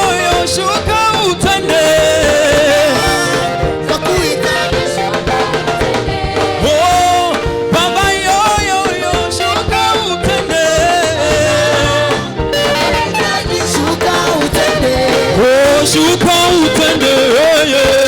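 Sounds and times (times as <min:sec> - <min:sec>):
live band praise music: 0:00.0 - 0:18.0.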